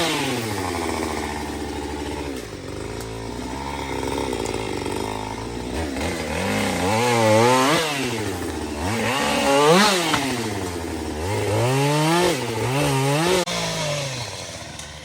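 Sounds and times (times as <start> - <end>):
chainsaw cutting into tree trunk: 0.0 - 15.0.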